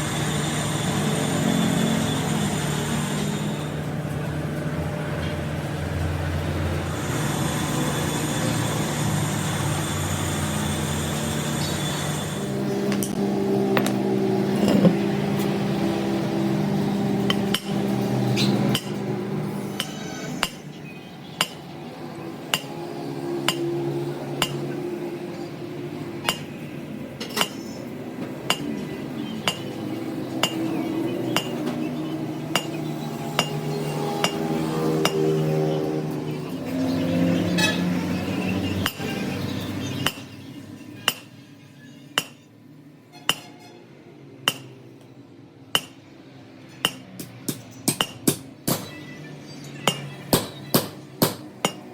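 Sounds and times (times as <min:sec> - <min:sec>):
hammer striking metal: 0:17.2 - 0:17.9, 0:18.7 - 0:19.0, 0:19.8 - 0:20.7, 0:21.4 - 0:21.6, 0:22.5 - 0:22.8, 0:23.4 - 0:23.8, 0:24.4 - 0:24.7, 0:26.3 - 0:26.6, 0:27.2 - 0:27.8, 0:29.4 - 0:29.8, 0:30.4 - 0:30.7, 0:32.5 - 0:32.8, 0:38.8 - 0:39.1, 0:40.0 - 0:40.3, 0:41.0 - 0:41.3, 0:42.2 - 0:42.5, 0:43.2 - 0:43.6, 0:44.5 - 0:44.8, 0:45.7 - 0:46.0, 0:46.7 - 0:49.0, 0:49.8 - 0:51.9.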